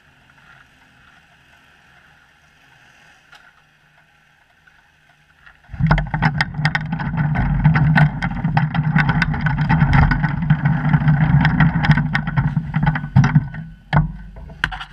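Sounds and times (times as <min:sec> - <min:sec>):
sharp clicks and rattles: 0:05.4 - 0:14.9.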